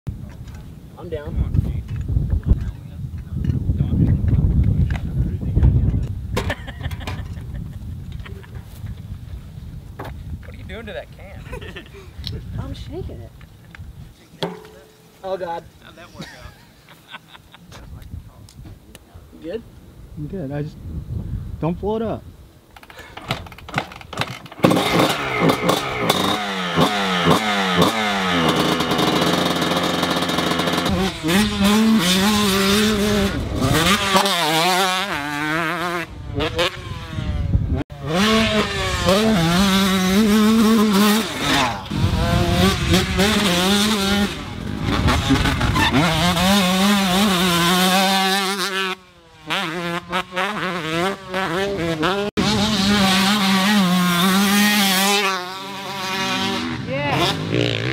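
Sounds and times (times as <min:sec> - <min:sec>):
dirt bike engines revving: 0:22.8 - 0:57.9.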